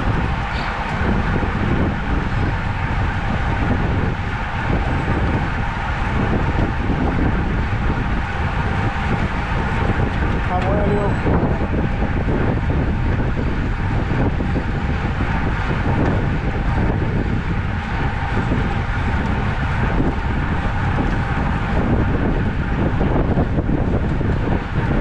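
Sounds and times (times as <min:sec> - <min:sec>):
wind buffeting the microphone: 0:00.0 - 0:25.0.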